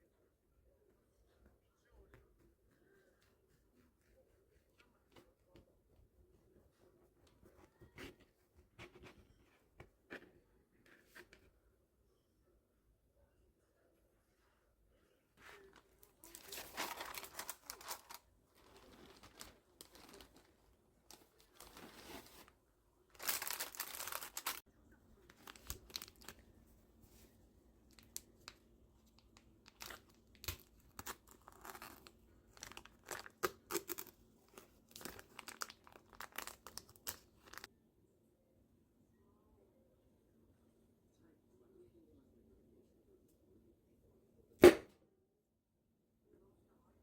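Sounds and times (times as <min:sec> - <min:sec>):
packaging crinkling and tearing: 0:16.2 - 0:20.5, 0:23.2 - 0:24.6, 0:25.3 - 0:26.4, 0:29.6 - 0:34.1, 0:34.9 - 0:37.7.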